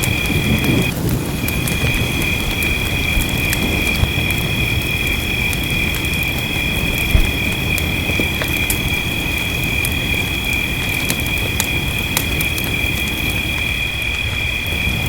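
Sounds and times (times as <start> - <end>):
wood fire crackling and popping: 0.0 - 15.0
low thump: 7.1 - 7.5.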